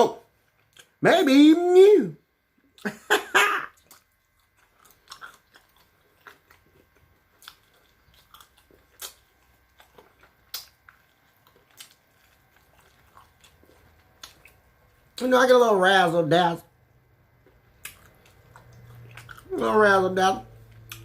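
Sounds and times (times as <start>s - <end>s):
chewing crunchy food: 0.3s - 1.0s, 3.6s - 15.3s, 17.3s - 19.8s, 20.4s - 21.0s.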